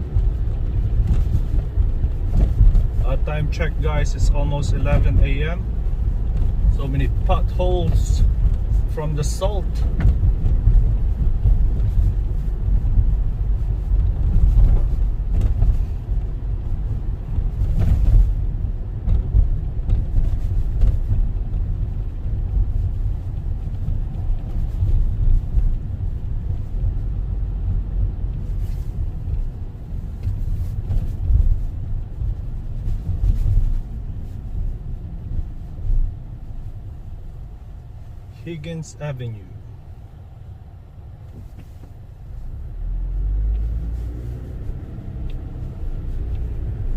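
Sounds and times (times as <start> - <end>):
rumble of tyres and engine: 0.0 - 46.9
car knocking over bumps: 9.6 - 16.2, 17.2 - 26.0.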